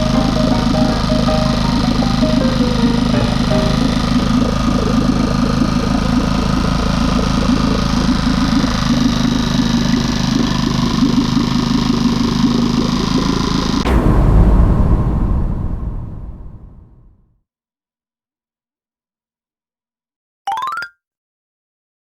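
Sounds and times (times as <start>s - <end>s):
outboard motor idling: 1.7s - 12.9s.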